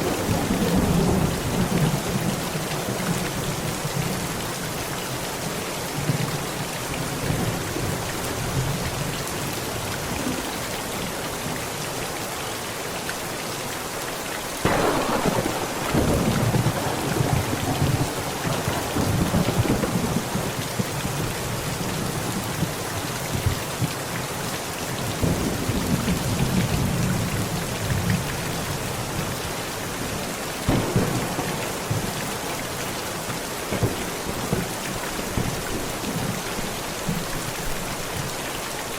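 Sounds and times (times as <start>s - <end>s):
heavy rain on a tent: 0.0s - 38.9s
thunder rumbling: 14.6s - 22.7s, 30.7s - 36.8s.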